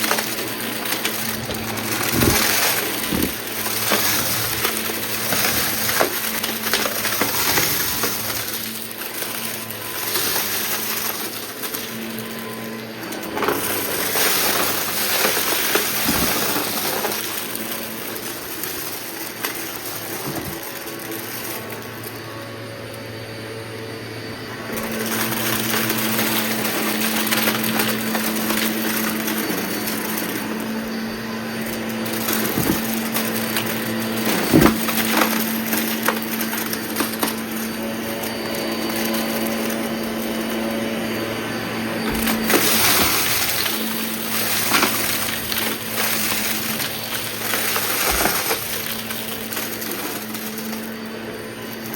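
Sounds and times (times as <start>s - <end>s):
debris crackling in vacuum: 0.0s - 51.9s
vacuum cleaner running: 0.0s - 51.9s.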